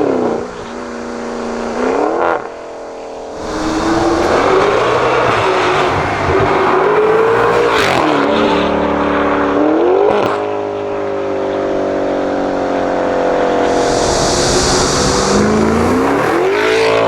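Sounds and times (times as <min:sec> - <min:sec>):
exhaust crack: 0:03.4 - 0:08.9, 0:13.0 - 0:17.0
car engine accelerating hard: 0:03.4 - 0:10.3, 0:13.0 - 0:17.0.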